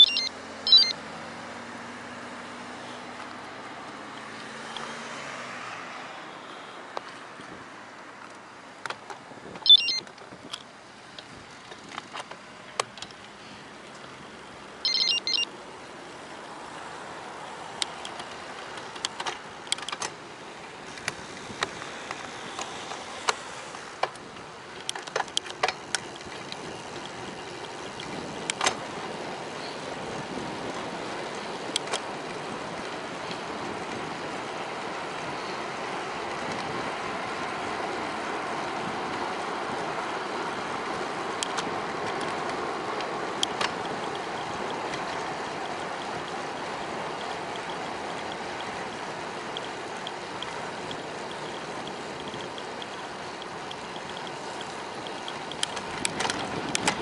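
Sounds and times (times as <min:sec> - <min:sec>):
short high-pitched tones: 0:00.0 - 0:01.0, 0:09.6 - 0:10.0, 0:14.8 - 0:15.5
wind and tyre noise: 0:00.0 - 0:57.0
bike clicks and rattles: 0:08.2 - 0:14.3, 0:16.7 - 0:57.0.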